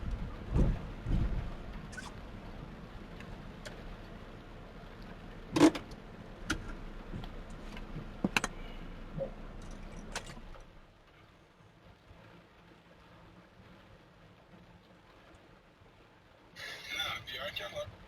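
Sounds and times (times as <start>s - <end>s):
car running: 0.0s - 18.0s
heavy rain: 0.0s - 18.0s
sharp clicks and knocks: 5.6s - 8.6s.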